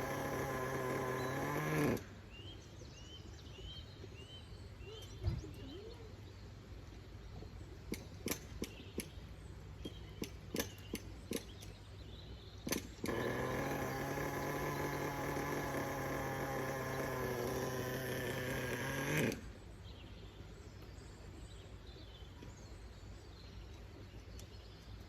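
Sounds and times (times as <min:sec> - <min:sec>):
small nitro engine running: 0:00.0 - 0:02.2, 0:12.7 - 0:19.6
bird chirping: 0:00.9 - 0:18.7
sharp clicks: 0:12.6 - 0:19.4.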